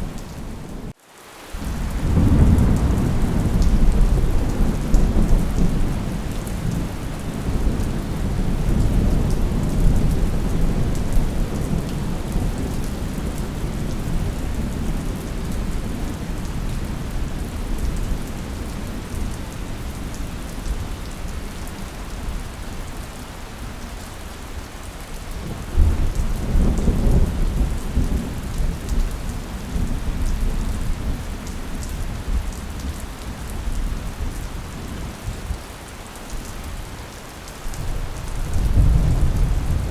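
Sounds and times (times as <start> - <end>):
heavy rain falling: 0.0 - 39.9
rolling thunder: 1.6 - 18.2, 37.8 - 39.9.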